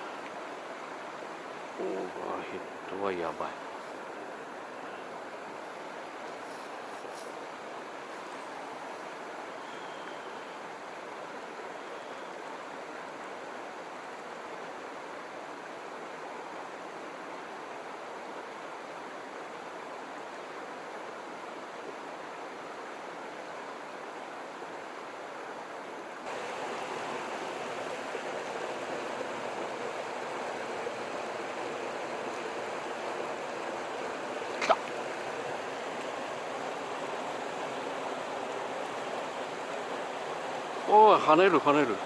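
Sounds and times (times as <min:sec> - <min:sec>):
river rushing over rapids: 0:00.0 - 0:42.0.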